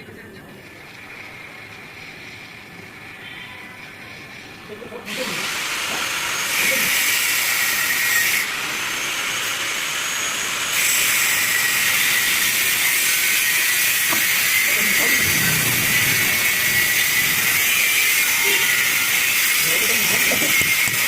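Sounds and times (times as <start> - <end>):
loud steady hiss: 5.1 - 21.0.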